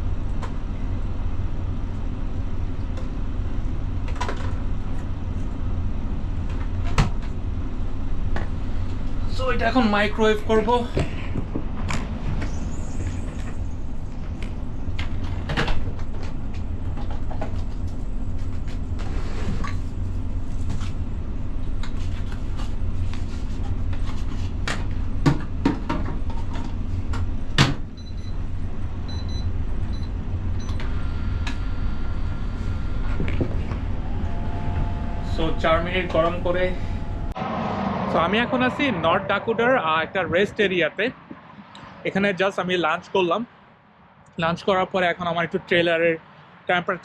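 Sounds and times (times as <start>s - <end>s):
microwave humming: 26.7s - 37.4s.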